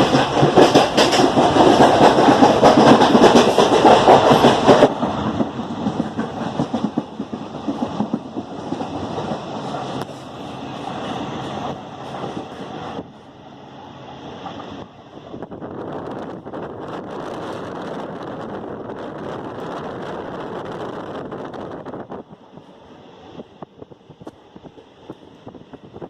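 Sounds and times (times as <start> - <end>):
wheel clatter on rails: 0.0 - 10.1
train running noise: 0.0 - 26.0.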